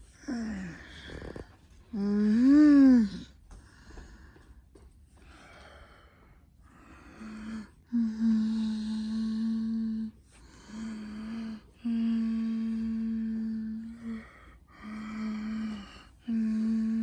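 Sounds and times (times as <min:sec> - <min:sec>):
person humming low note: 0:00.0 - 0:03.3, 0:07.9 - 0:17.0
breathing: 0:03.4 - 0:08.6, 0:10.1 - 0:17.0.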